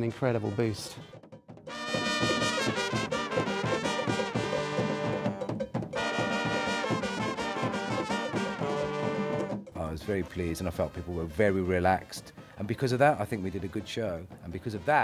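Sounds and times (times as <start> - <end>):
drums and percussion beat: 0.0 - 15.0
horns playing a melody: 1.7 - 9.7.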